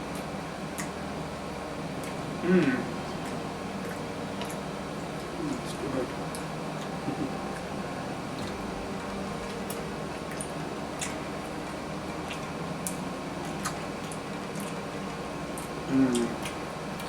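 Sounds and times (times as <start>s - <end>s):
room hum: 0.0s - 17.0s.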